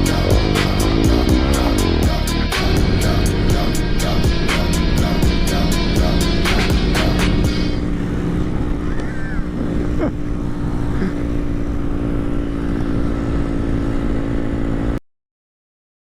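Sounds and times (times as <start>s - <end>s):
low rumbling noise: 0.0s - 14.6s
mini bike engine running: 5.0s - 15.0s.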